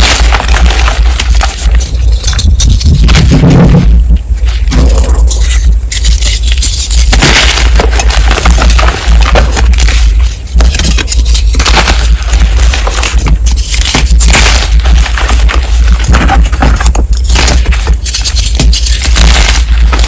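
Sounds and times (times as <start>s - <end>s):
chalk blocks crunching: 0.0s - 3.7s, 4.4s - 20.0s
low rumble: 0.0s - 13.5s.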